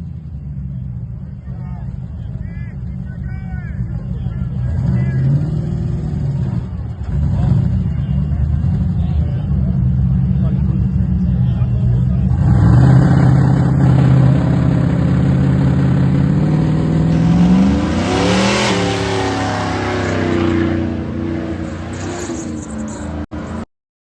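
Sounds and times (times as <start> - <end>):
truck engine revving high: 2.1 - 23.6.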